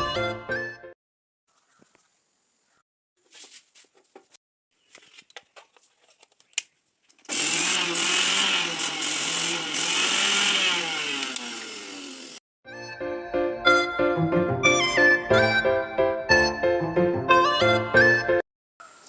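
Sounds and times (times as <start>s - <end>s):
small electric motor whirring: 7.3s - 12.4s.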